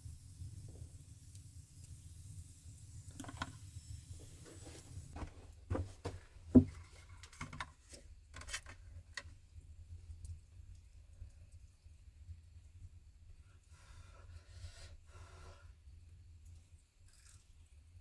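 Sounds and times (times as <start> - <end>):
objects knocking and clicking: 3.1 - 3.6, 5.7 - 9.3.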